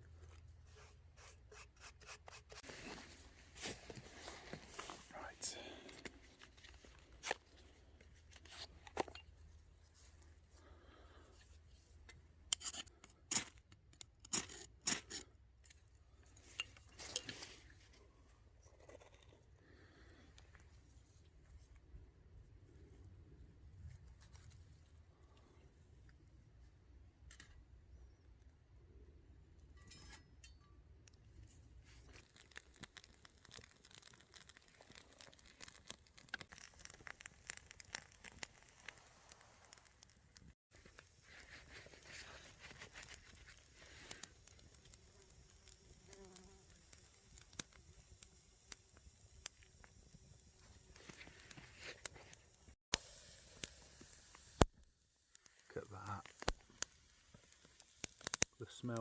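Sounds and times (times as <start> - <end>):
handling rustles and scrapes: 0.0 - 19.6, 20.3 - 26.0, 31.3 - 54.7
wood fire crackling and popping: 32.0 - 59.0.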